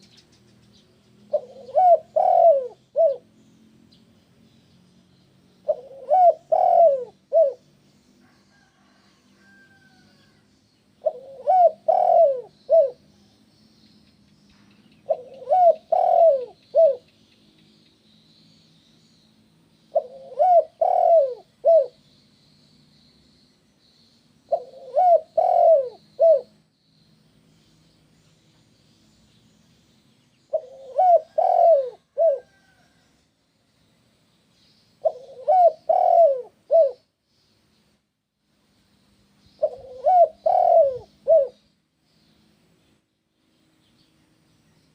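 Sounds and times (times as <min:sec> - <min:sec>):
dove cooing: 0:01.3 - 0:03.3, 0:05.6 - 0:07.7, 0:11.0 - 0:13.0, 0:15.1 - 0:17.1, 0:19.9 - 0:22.0, 0:24.5 - 0:26.6, 0:30.5 - 0:32.8, 0:35.0 - 0:37.0, 0:39.6 - 0:41.6.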